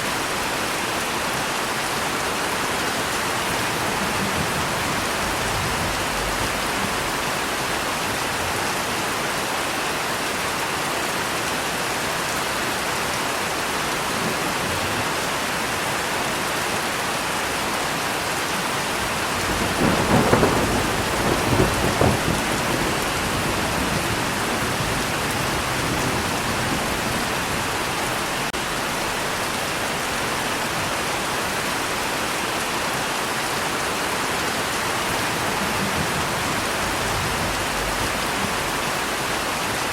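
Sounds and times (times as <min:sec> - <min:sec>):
heavy rain hiss: 0:00.0 - 0:39.9
thunder rolling: 0:03.0 - 0:08.2, 0:19.0 - 0:27.9, 0:34.9 - 0:39.4.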